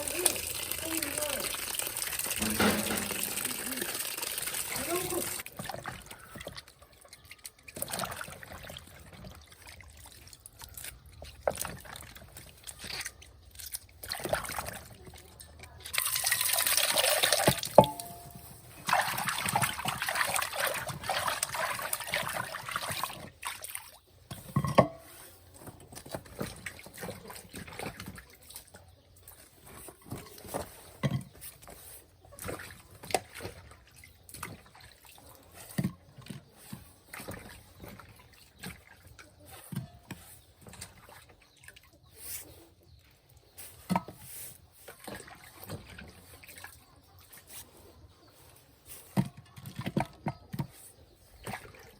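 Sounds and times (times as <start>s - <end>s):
water pouring: 0.0s - 24.0s
light knocks and clinks: 2.4s - 3.9s, 17.8s - 18.6s, 24.4s - 25.2s.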